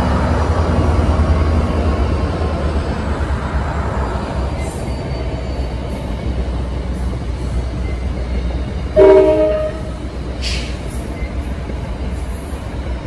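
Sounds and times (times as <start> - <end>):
train rumbling past: 0.0 - 13.0
train wheel squeal: 3.7 - 13.0.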